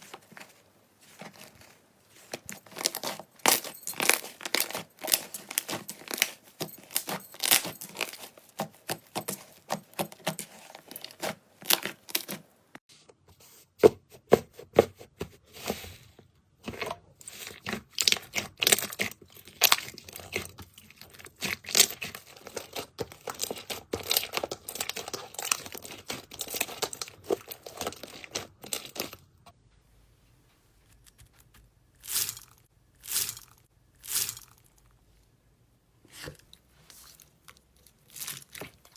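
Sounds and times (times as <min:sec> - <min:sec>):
slime crackling and popping: 0:02.6 - 0:12.4.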